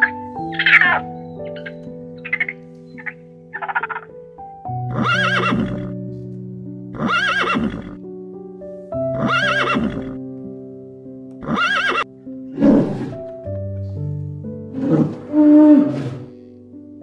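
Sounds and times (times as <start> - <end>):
soft piano music: 0.0 - 17.0
rough animal call: 0.5 - 4.1, 4.9 - 5.9, 7.0 - 8.0, 11.4 - 13.3, 14.7 - 16.3
horse whinnying: 4.9 - 5.9, 7.0 - 8.0, 9.2 - 10.2, 11.4 - 13.2, 14.8 - 16.3.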